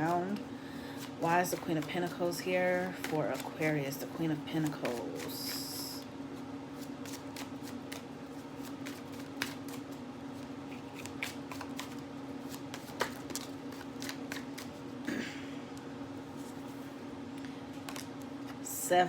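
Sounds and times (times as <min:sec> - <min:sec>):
cards being shuffled: 0:00.9 - 0:06.1, 0:06.7 - 0:14.9, 0:17.8 - 0:18.6.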